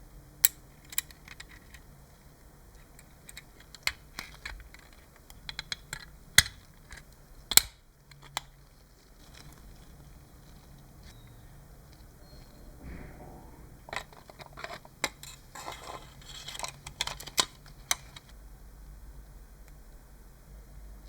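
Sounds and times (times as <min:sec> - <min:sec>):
hand tools clicking and tapping: 0:02.8 - 0:08.5.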